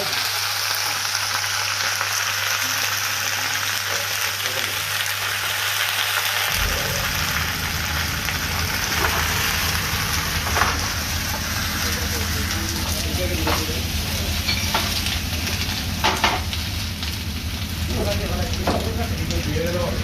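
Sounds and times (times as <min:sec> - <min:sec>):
food sizzling in a pan: 0:00.0 - 0:20.0
low hum: 0:06.5 - 0:20.0.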